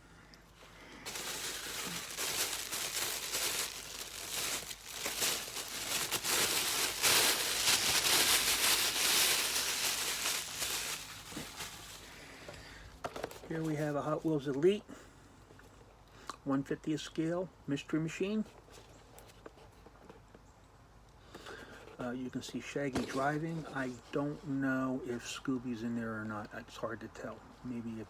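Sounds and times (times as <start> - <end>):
packaging crinkling: 0.8 - 12.5.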